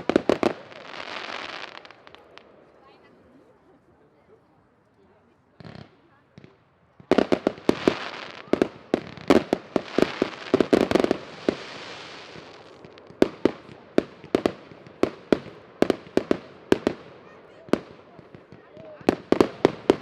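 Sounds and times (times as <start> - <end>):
fireworks bangs: 0.0 - 2.6, 5.6 - 20.0
fireworks crackling hiss: 0.0 - 2.6, 7.0 - 20.0.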